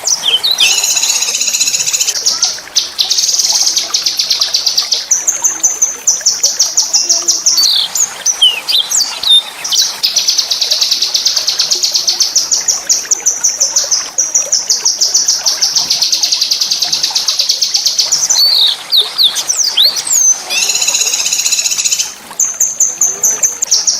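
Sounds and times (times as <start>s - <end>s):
songbird trilling: 0.0s - 5.1s, 6.9s - 12.6s, 16.0s - 22.2s.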